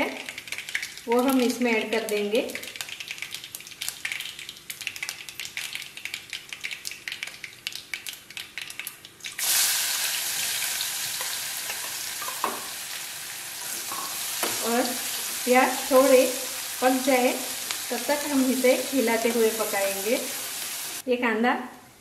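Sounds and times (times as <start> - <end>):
spices crackling and popping in oil: 0.0 - 21.0
onion sizzling in pan: 8.6 - 21.0.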